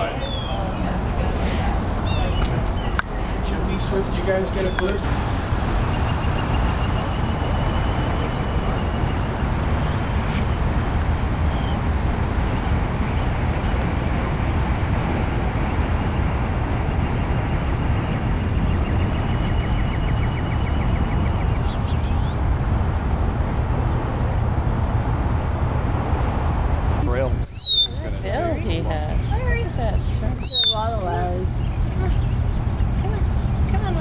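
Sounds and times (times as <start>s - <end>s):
bird trill: 0.0s - 0.8s, 17.0s - 22.4s, 27.4s - 28.0s, 30.3s - 33.7s
low outdoor rumble: 0.0s - 34.0s
faint bird calls: 27.4s - 28.1s, 29.2s - 33.8s.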